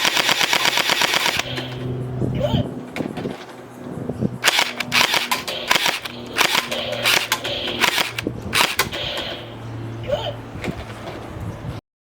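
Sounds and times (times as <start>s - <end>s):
gel ball blaster firing bursts: 0.0s - 1.8s, 4.4s - 9.6s.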